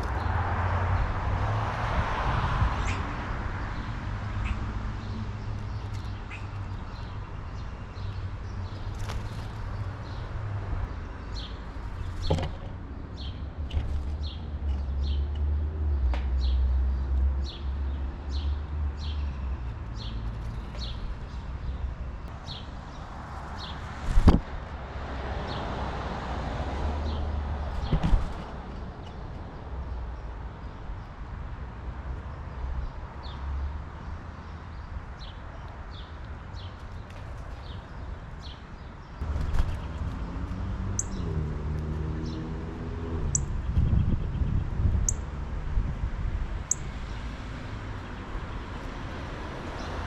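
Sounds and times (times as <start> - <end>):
songbird chirping: 3.7 - 24.4, 34.6 - 45.3.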